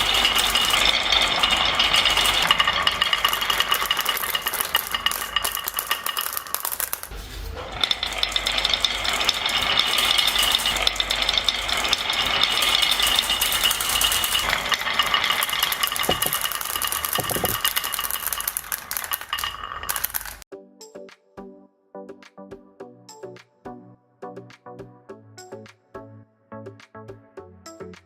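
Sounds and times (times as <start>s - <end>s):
marbles rattling down a track: 0.0s - 20.4s.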